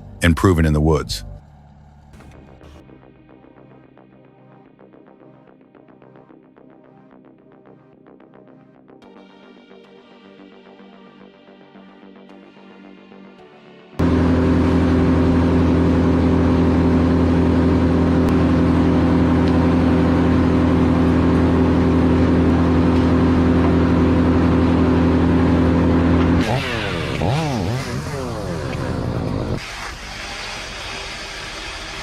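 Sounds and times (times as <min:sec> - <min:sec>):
diesel engine running hard: 0:14.0 - 0:32.0.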